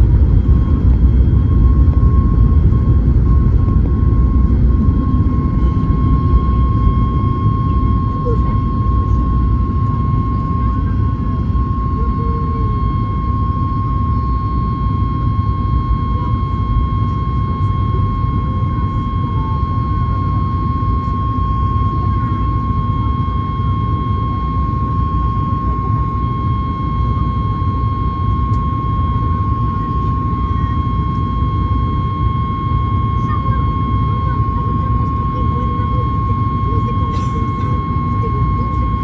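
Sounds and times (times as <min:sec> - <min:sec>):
jet engines and airflow rushing: 0:00.0 - 0:24.0
steady high whine: 0:00.0 - 0:39.0.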